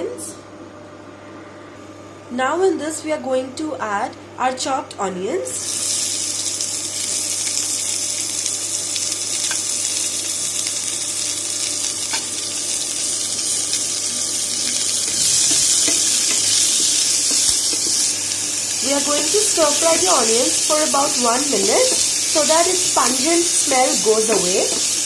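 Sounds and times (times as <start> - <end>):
onions sizzling in frying pan: 5.6 - 25.0.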